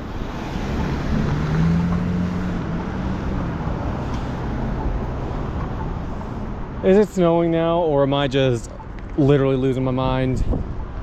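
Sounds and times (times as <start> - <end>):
vehicle engine passing: 0.0 - 6.8
street traffic: 0.0 - 11.0
wind rumbling on microphone: 10.0 - 11.0.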